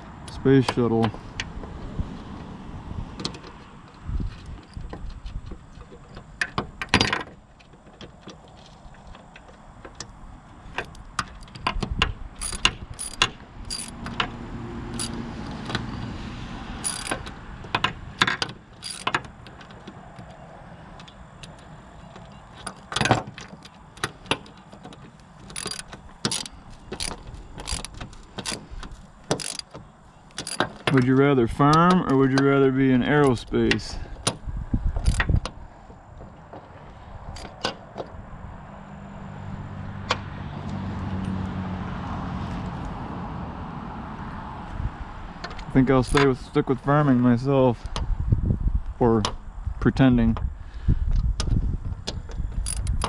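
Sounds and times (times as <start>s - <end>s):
wrench ratcheting and scraping: 10.7s - 14.3s, 14.9s - 15.8s, 16.8s - 19.8s, 22.6s - 32.1s, 35.0s - 35.4s, 52.4s - 53.0s
wrench metallic clicks: 10.8s - 14.3s, 15.0s - 15.8s, 16.8s - 19.7s, 22.6s - 32.4s, 35.0s - 35.5s, 52.6s - 53.0s.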